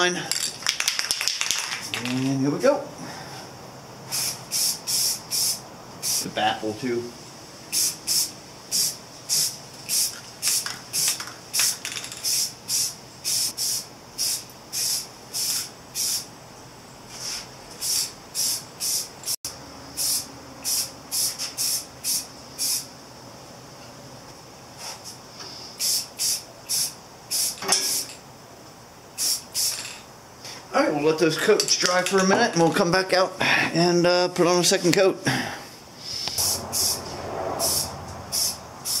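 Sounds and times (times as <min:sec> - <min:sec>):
aerosol spray can spraying: 0:04.1 - 0:06.3, 0:07.7 - 0:16.3, 0:17.1 - 0:19.4, 0:20.0 - 0:22.9, 0:24.8 - 0:28.2, 0:29.2 - 0:30.0, 0:36.4 - 0:39.0.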